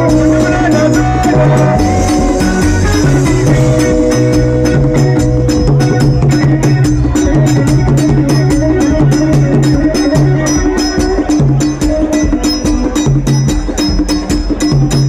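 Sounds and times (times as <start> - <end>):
bass line: 0.0 - 15.0
fast percussion beat: 0.0 - 15.0.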